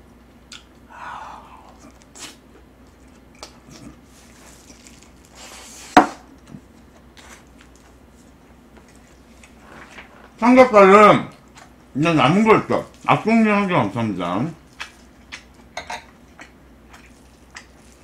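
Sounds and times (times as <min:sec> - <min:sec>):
breathy hiss: 0:00.9 - 0:02.4
person chewing food: 0:14.6 - 0:18.0.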